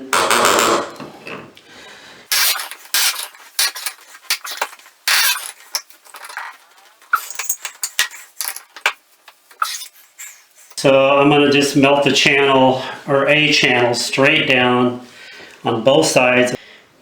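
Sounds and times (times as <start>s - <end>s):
hand tool scraping plastic: 2.3s - 6.6s.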